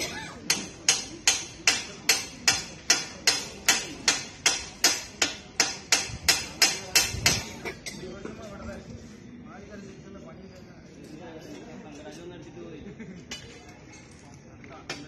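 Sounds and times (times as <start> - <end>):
hammer striking steel: 0.4 - 7.6.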